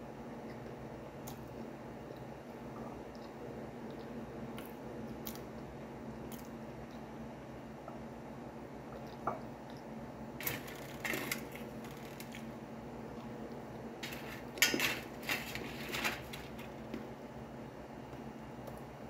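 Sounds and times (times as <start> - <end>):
steady low hum: 0.0 - 19.0
soft chewing: 0.4 - 7.1, 8.9 - 9.9
biscuits rattling on metal plate: 10.4 - 12.4, 14.0 - 16.8.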